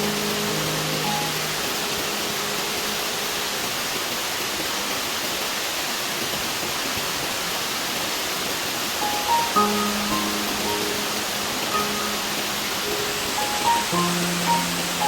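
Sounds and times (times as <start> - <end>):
background music: 0.0 - 3.5, 9.0 - 15.0
waterfall rushing: 0.0 - 15.0.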